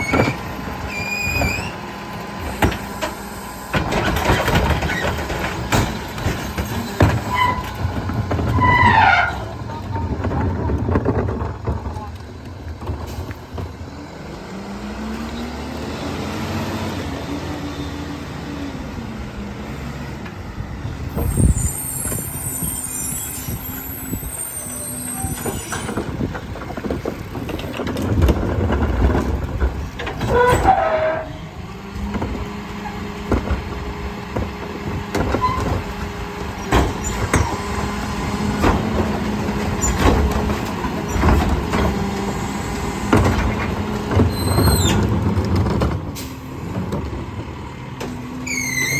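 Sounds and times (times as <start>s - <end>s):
high squeal: 0.0s - 1.8s, 21.1s - 26.1s, 48.4s - 48.9s
knocks and clunks: 0.0s - 14.0s, 25.2s - 48.9s
garbage truck engine revving: 0.0s - 48.9s
hydraulic packer compacting: 0.0s - 48.9s.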